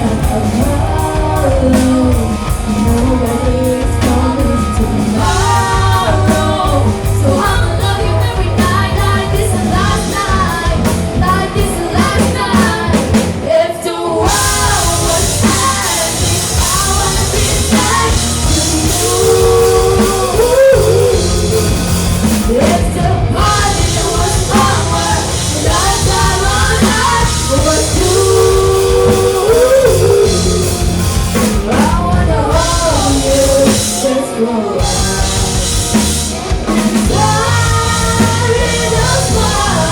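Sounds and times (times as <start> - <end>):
live rock band playing: 0.0 - 39.9
person singing: 0.0 - 39.9.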